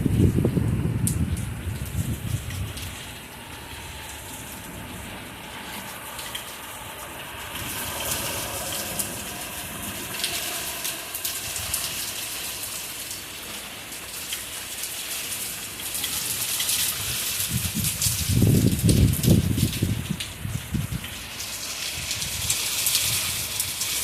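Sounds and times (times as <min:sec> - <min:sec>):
thunder rumble: 0:00.0 - 0:13.2, 0:16.9 - 0:21.2
heavy rain falling: 0:00.0 - 0:24.0
rain drop hits: 0:00.0 - 0:24.0.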